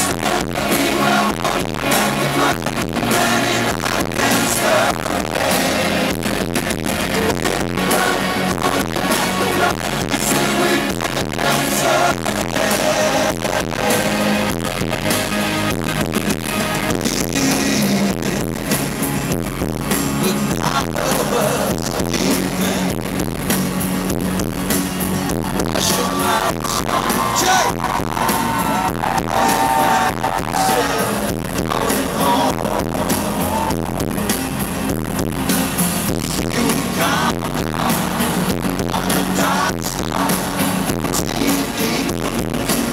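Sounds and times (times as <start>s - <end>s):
voices singing: 0.0s - 14.5s, 25.7s - 33.7s, 36.3s - 42.9s
live pop band drum backing: 0.0s - 42.9s.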